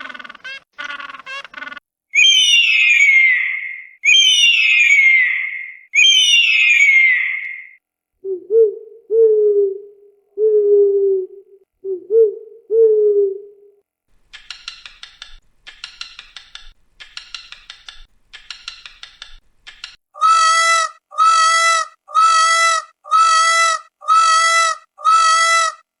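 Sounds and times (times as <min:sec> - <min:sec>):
steady-pitched animal calls: 0:00.0 - 0:13.6, 0:19.7 - 0:25.9
rapid clicking chatter: 0:14.3 - 0:20.0.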